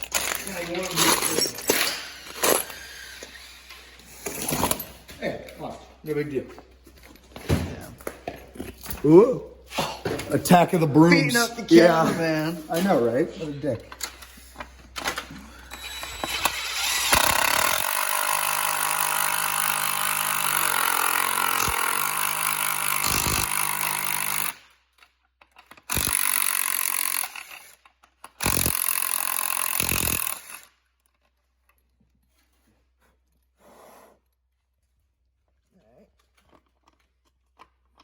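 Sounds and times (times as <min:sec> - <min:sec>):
electric drill drilling metal: 0:15.5 - 0:24.6, 0:25.9 - 0:27.8, 0:28.4 - 0:30.7.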